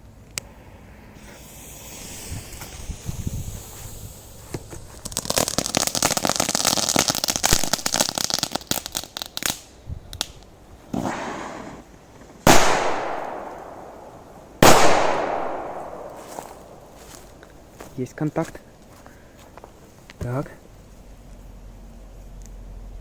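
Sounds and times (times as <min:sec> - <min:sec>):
firecrackers crackling: 0:01.1 - 0:17.9
loud firecracker bangs with echo: 0:12.5 - 0:16.8.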